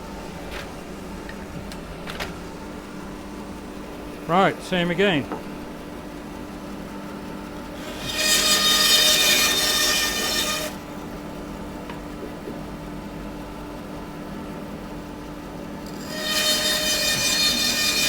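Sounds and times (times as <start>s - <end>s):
bandsaw humming: 4.2s - 5.4s, 7.7s - 10.8s, 15.9s - 18.0s
bandsaw cutting wood: 7.8s - 10.8s, 15.9s - 18.0s.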